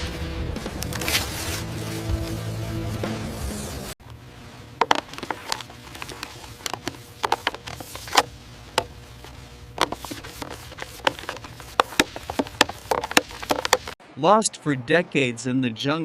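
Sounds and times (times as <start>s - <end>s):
music: 0.0s - 4.0s.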